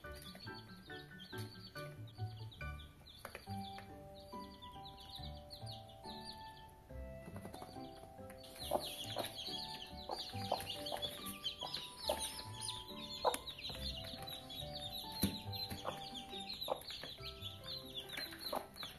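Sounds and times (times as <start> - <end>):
baby chicks peeping: 0.0 - 18.9
background music: 0.0 - 18.9
hen clucking: 8.5 - 18.9.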